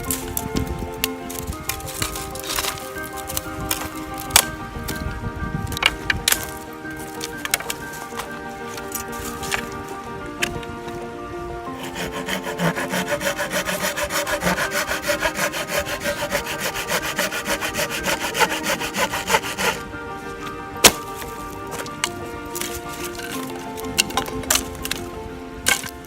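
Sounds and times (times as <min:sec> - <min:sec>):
background music: 0:00.0 - 0:26.0
hand saw cutting wood: 0:11.8 - 0:19.8.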